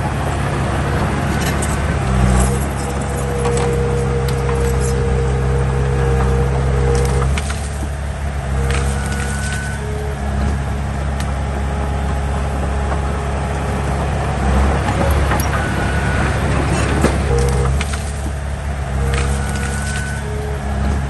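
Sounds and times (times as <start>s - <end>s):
heavy diesel engine running: 0.0s - 21.0s.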